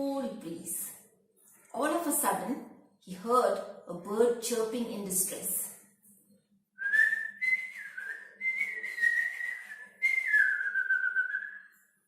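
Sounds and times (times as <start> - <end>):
person whistling bird call: 6.8 - 11.8.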